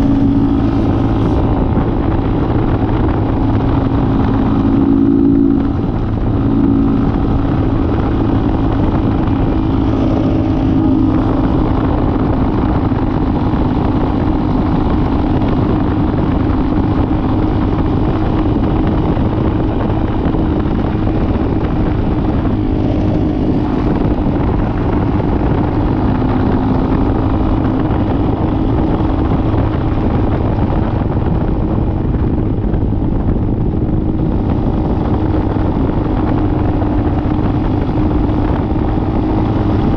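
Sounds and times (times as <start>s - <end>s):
dirt bike engine cruising: 0.0s - 39.9s.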